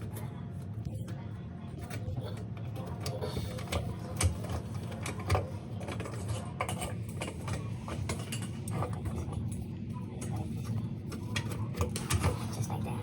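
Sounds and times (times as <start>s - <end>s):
sink drain parts clicking: 2.8s - 9.3s.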